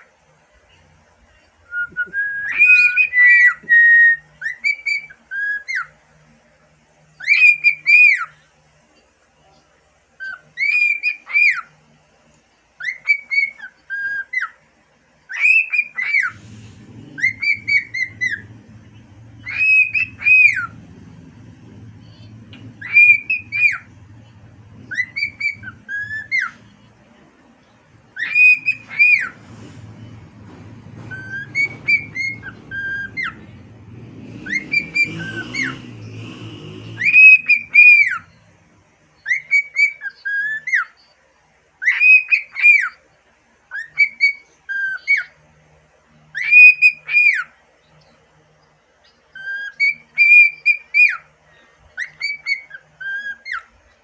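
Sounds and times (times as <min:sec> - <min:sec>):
faint low hum: 0:00.0 - 0:54.0
cockatiel whistling: 0:01.7 - 0:05.9, 0:07.2 - 0:08.4, 0:10.2 - 0:11.7, 0:12.8 - 0:14.6, 0:15.3 - 0:26.9, 0:28.1 - 0:36.2, 0:36.9 - 0:38.5, 0:39.2 - 0:41.1, 0:41.8 - 0:43.0, 0:43.7 - 0:45.4, 0:46.3 - 0:47.5, 0:49.3 - 0:51.3, 0:52.0 - 0:53.7.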